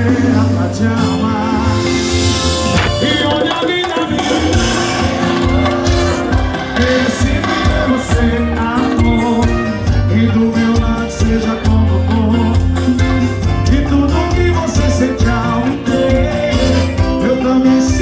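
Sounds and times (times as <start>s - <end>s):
band playing music: 0.0s - 18.0s
person singing: 0.0s - 18.0s
bass beat: 1.5s - 17.2s.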